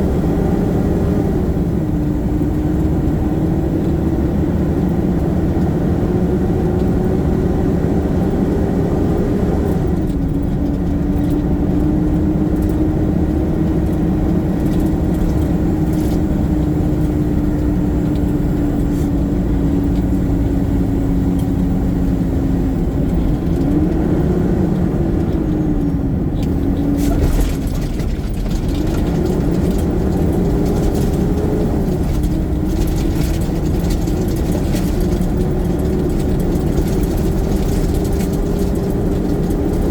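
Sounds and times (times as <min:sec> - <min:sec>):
garbage truck engine: 0:00.0 - 0:39.9
rattling and clatter: 0:10.0 - 0:24.0, 0:25.2 - 0:39.9.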